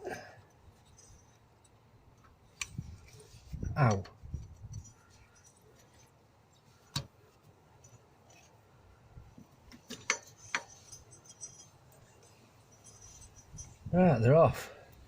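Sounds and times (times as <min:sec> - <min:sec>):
hand tools clicking on metal: 0:09.7 - 0:13.8.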